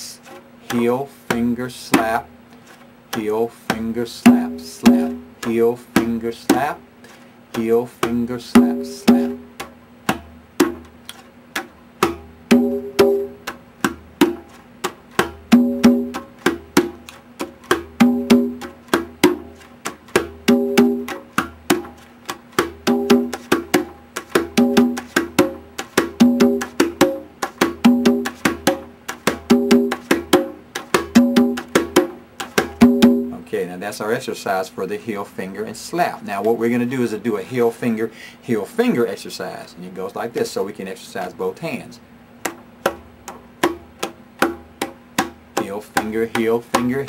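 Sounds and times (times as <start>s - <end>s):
conga drums played by hand: 0.0s - 2.4s, 3.0s - 33.5s, 42.3s - 47.0s.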